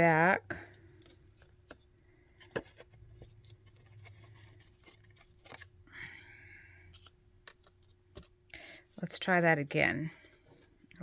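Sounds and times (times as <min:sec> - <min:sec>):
needle and thread handling sounds: 0:10.0 - 0:11.0.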